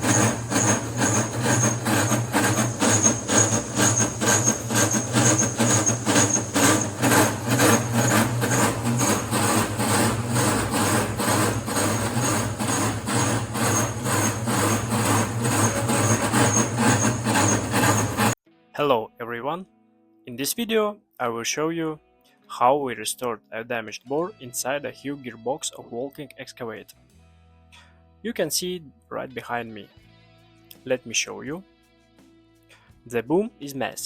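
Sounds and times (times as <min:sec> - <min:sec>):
machinery humming: 0:00.0 - 0:18.4.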